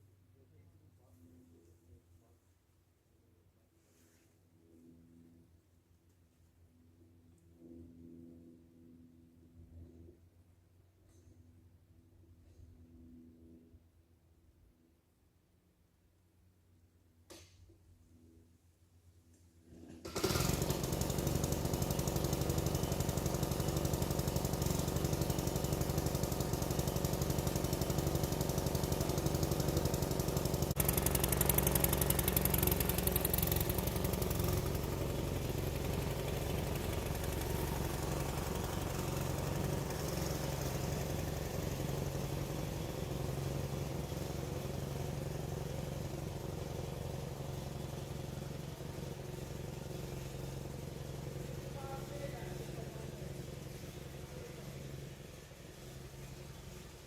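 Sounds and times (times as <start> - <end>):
rough rattling engine running: 20.0 - 57.0.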